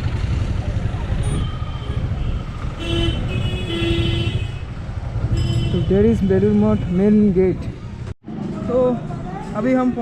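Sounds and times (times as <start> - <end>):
motorcycle engine rumble: 0.0 - 10.0
wind: 0.0 - 10.0
vehicle horn honking: 1.2 - 4.7, 5.3 - 6.0.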